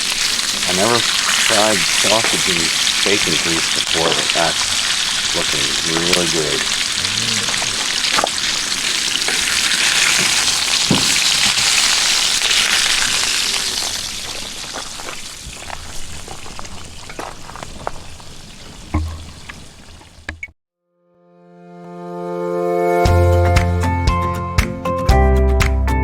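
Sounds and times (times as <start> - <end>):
food sizzling in a pan: 0.0 - 20.3.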